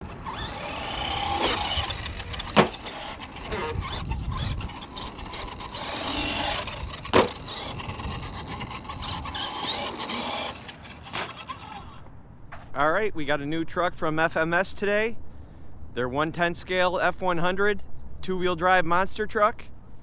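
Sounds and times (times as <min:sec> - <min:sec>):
toy truck electric motor whining: 0:00.0 - 0:12.1
tyre and chassis noise: 0:00.0 - 0:20.0.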